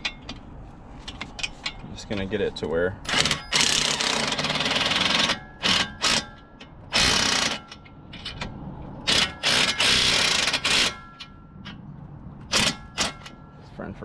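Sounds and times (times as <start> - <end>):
ratchet wrench clicking: 7.0 - 7.9.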